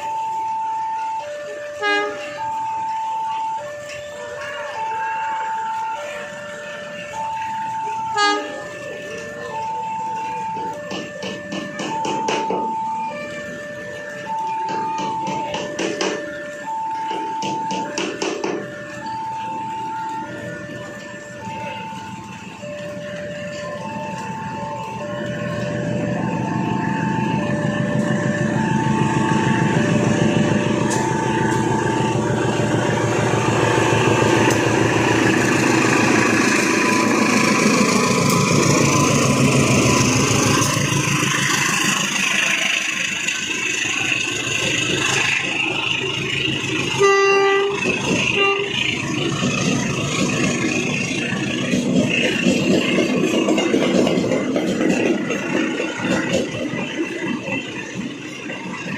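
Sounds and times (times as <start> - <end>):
train rumbling past: 0.0 - 58.9
two-tone warning signal: 0.0 - 58.9
train horn blasts: 1.6 - 2.5, 8.1 - 8.8, 46.9 - 49.0.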